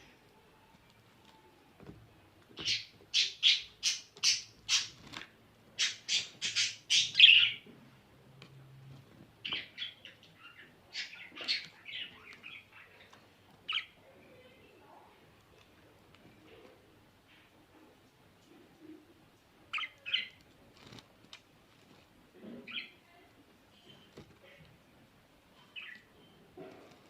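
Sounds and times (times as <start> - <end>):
budgerigar squawking and chirping: 2.6 - 5.0, 5.8 - 7.6.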